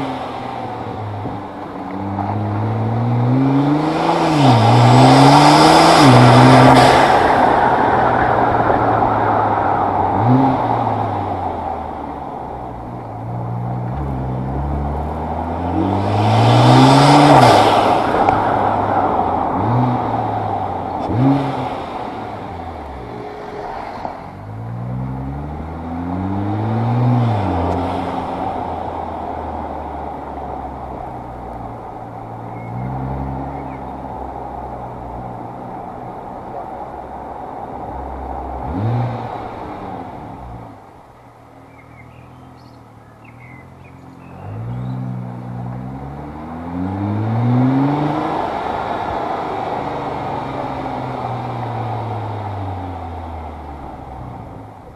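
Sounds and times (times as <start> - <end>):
car engine accelerating through gears: 0.0 - 54.9
rush of noise: 3.5 - 41.1.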